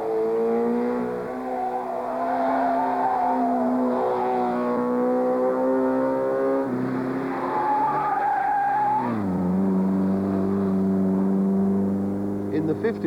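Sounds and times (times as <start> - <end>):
rally car engine pulling hard: 0.0 - 13.0
tyres squealing: 7.3 - 9.2.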